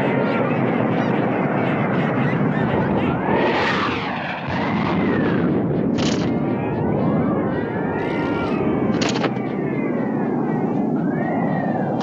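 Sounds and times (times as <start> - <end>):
sliding whistling tones: 6.8 - 12.0.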